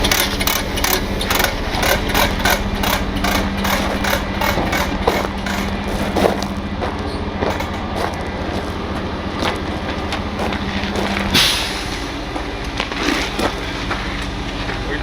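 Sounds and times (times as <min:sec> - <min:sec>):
engine knocks: 0:00.0 - 0:14.8
diesel truck idling: 0:00.0 - 0:15.0
air hissing: 0:11.1 - 0:12.2.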